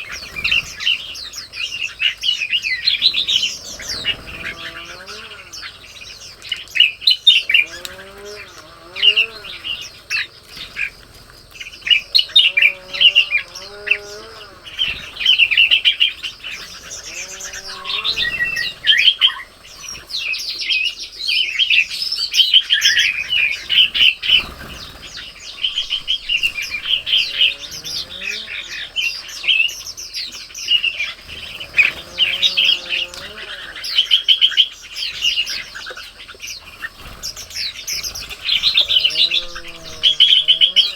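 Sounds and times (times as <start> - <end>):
small songbirds chirping: 0.0 - 40.9
low rising and falling bird call: 2.7 - 11.0, 11.6 - 20.3, 22.7 - 29.7, 31.2 - 34.7, 36.9 - 40.9.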